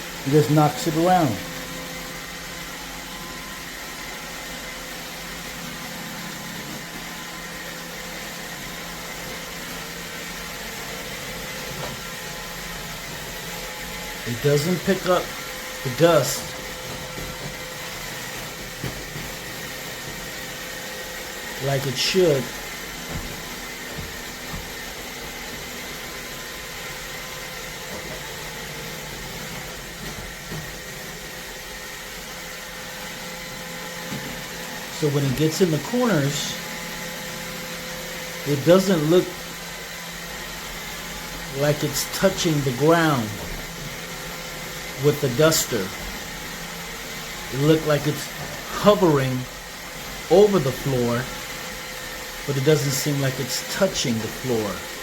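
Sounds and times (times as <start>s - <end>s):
robot vacuum whirring: 0.1s - 55.0s.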